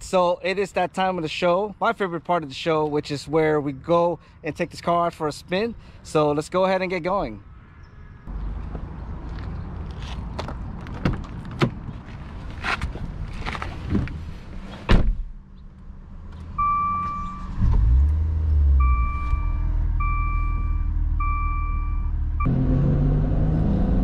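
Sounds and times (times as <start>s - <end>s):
car door slam: 14.8s - 15.3s
dashboard chime beeping: 18.8s - 22.1s.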